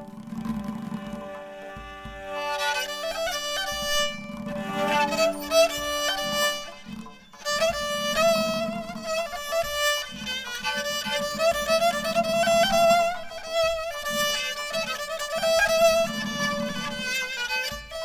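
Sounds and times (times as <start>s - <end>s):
low musical accompaniment: 0.0s - 18.0s
solo violin slow melody: 0.0s - 18.0s.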